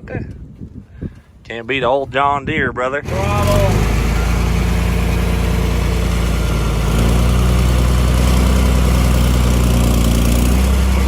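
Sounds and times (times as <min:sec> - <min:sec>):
diesel tractor engine idling: 0:03.0 - 0:11.0.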